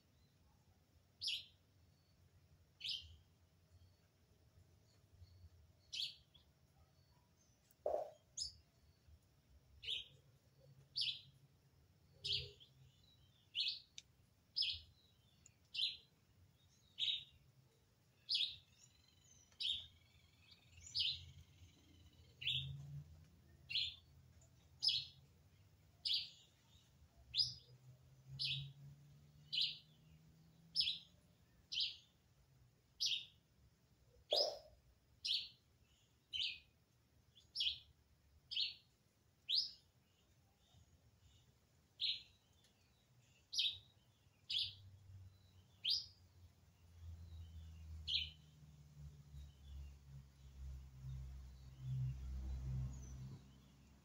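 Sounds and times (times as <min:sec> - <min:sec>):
bird chirping repeatedly: 0:00.1 - 0:54.0.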